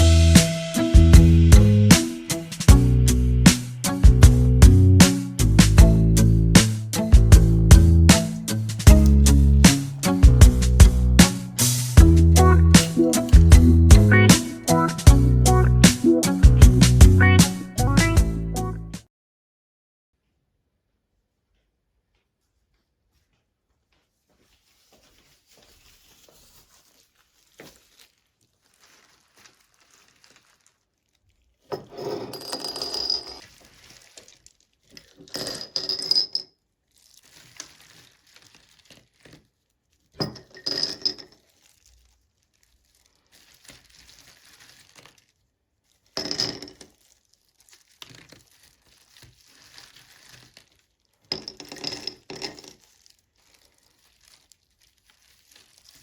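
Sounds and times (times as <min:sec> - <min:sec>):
dish handling sounds: 0:08.1 - 0:11.8, 0:12.4 - 0:14.6.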